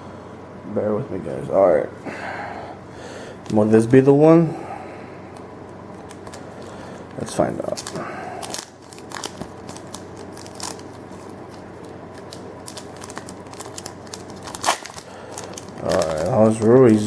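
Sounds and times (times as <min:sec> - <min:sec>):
wrapper tearing and crinkling: 0:07.6 - 0:17.0.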